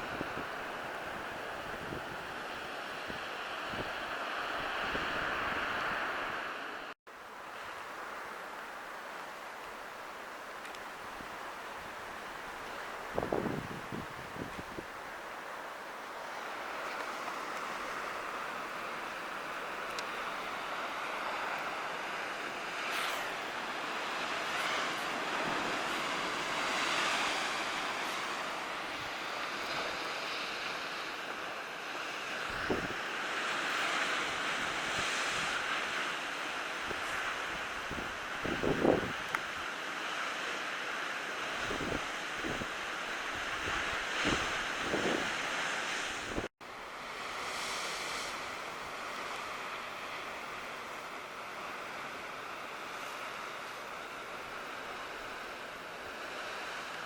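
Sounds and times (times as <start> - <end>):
sea surf washing ashore: 0.0 - 57.0
wind buffeting microphone: 13.0 - 15.0, 32.5 - 33.0, 36.9 - 39.2, 41.6 - 42.7, 43.3 - 45.4.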